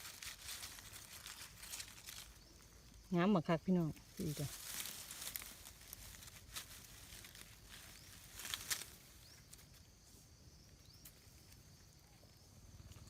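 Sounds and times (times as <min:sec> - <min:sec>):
dry leaves crackling and rustling: 0:00.0 - 0:10.0.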